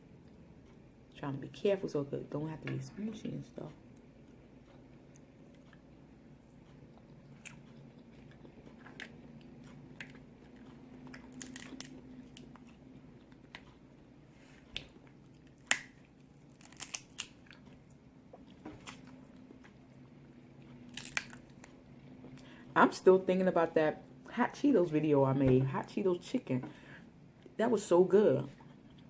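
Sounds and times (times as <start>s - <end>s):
chewing: 3.9s - 14.0s, 14.6s - 22.5s, 28.5s - 29.0s
crab shells cracking: 11.0s - 12.6s, 14.8s - 17.6s, 20.9s - 21.7s.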